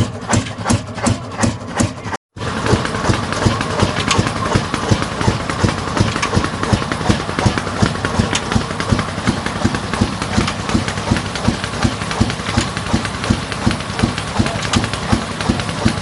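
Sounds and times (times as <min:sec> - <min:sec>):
diesel engine knocking steadily: 0:00.0 - 0:16.0.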